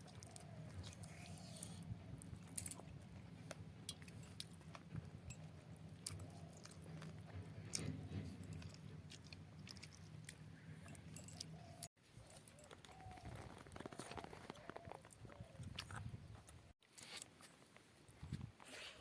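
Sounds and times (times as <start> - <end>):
person chewing food: 3.9 - 12.0, 12.6 - 17.4.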